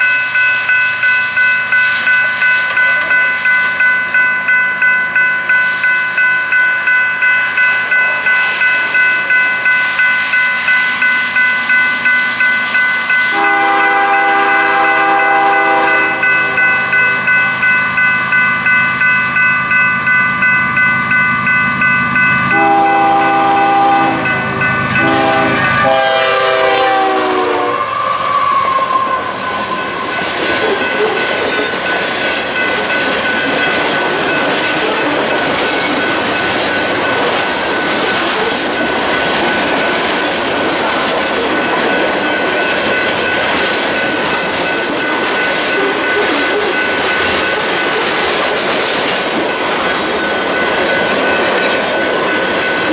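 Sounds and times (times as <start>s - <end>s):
crossing bell ringing: 0.0s - 52.9s
train wheels on rails: 0.0s - 52.9s
locomotive horn blasts: 13.3s - 16.9s, 22.5s - 29.4s.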